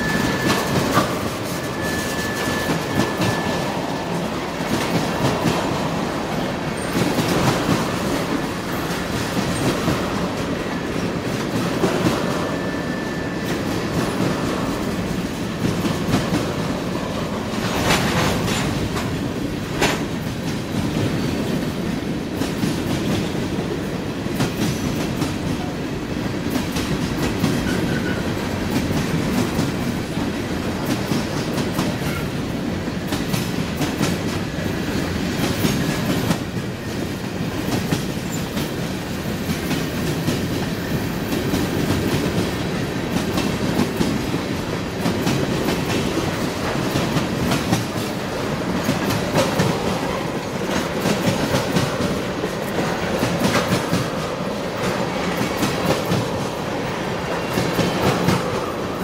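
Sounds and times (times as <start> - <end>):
wheels clacking over rail joints: 0.0 - 25.7
freight train wheels rumbling: 0.0 - 59.0.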